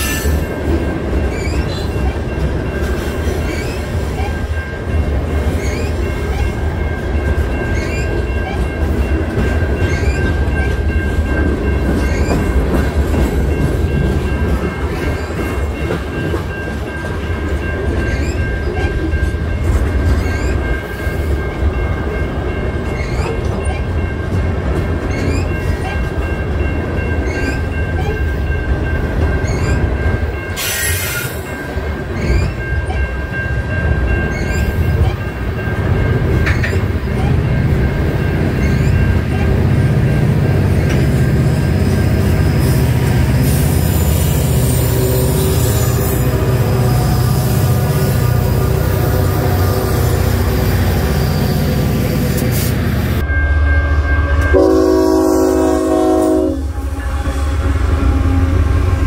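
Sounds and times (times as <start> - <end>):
freight train rumbling: 0.0 - 59.0
high-pitched wheel squeal: 5.5 - 6.5.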